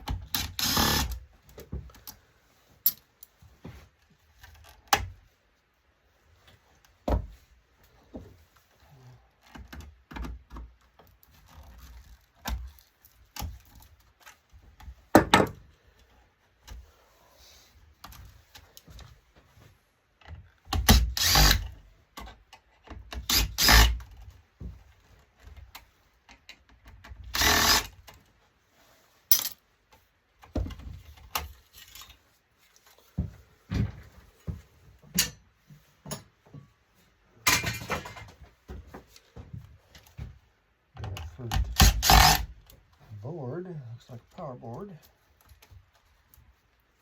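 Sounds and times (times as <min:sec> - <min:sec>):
parts clicking and knocking: 0:02.8 - 0:05.2, 0:29.3 - 0:36.7.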